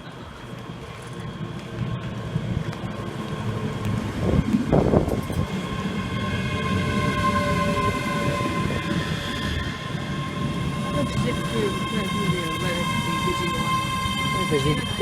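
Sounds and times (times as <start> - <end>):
train low rumble: 0.0 - 15.0
high-pitched squeal: 3.5 - 15.0.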